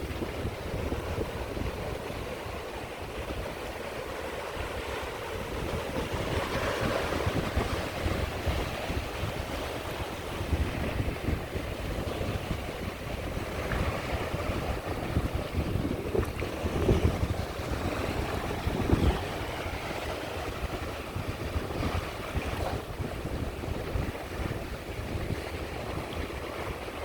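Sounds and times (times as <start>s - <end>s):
sea waves washing onto beach: 0.0s - 27.0s
wind buffeting microphone: 0.0s - 27.0s.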